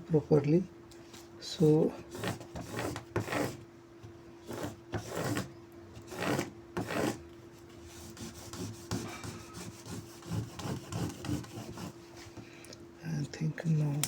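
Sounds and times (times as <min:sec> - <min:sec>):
faint steady hum: 0:00.0 - 0:14.0
squeegee scraping over vinyl sticker: 0:01.6 - 0:03.6, 0:04.4 - 0:12.0.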